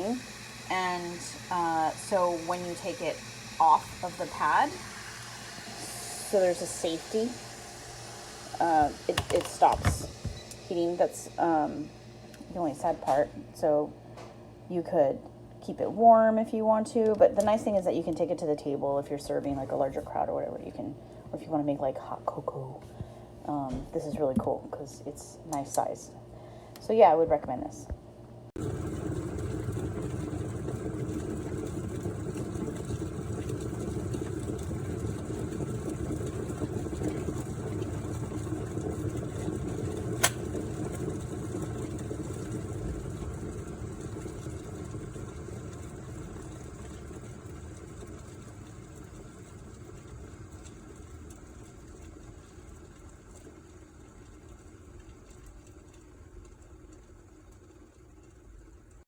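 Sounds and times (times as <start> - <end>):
kettle water boiling: 0.0 - 59.0
kettle switch click: 40.2 - 40.4.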